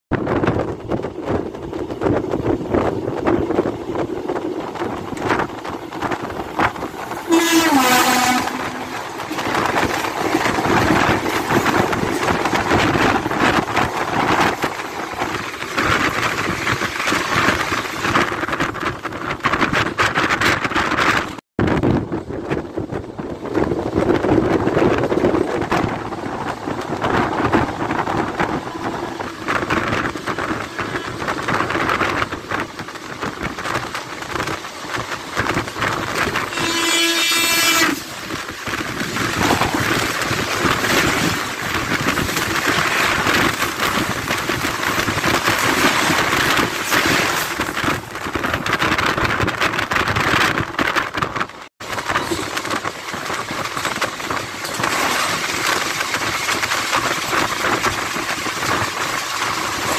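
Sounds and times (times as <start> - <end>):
passing train rushing by: 0.1 - 59.9
train wheels rattling on rail joints: 0.1 - 59.9
wind rush: 0.1 - 59.9
train horn: 7.3 - 9.3, 36.4 - 38.2.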